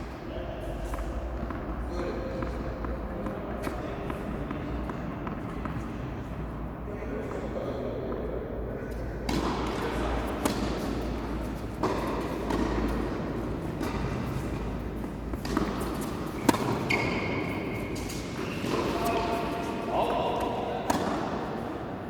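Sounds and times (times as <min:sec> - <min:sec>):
tennis ball struck and bouncing: 0:09.3 - 0:17.1, 0:18.0 - 0:19.7, 0:20.3 - 0:21.6.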